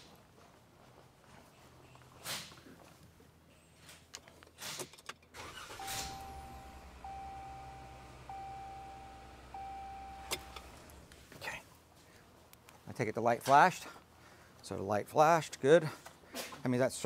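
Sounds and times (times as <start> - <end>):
engine cranking on starter: 5.4 - 11.1
chime tone: 5.8 - 10.6
clicks: 5.8 - 11.2.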